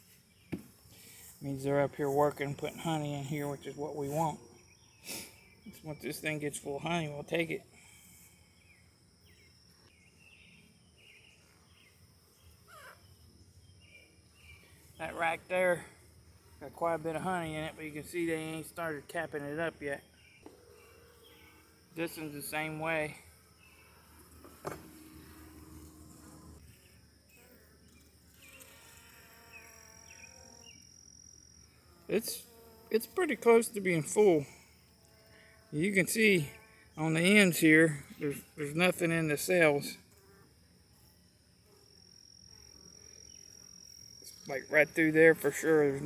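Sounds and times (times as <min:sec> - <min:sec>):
bees buzzing: 0:00.0 - 0:09.5, 0:11.0 - 0:27.0, 0:28.2 - 0:40.0, 0:41.6 - 0:46.0
high insect trill: 0:00.0 - 0:46.0
birds chirping: 0:00.1 - 0:07.6, 0:35.8 - 0:40.0
nearby bee humming: 0:20.2 - 0:30.8.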